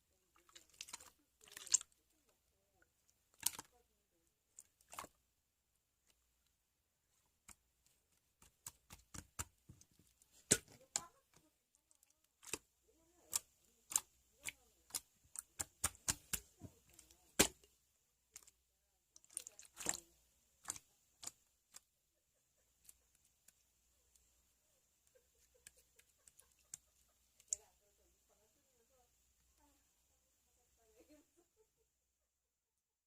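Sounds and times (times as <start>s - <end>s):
slime clicking and popping: 13.3s - 17.7s.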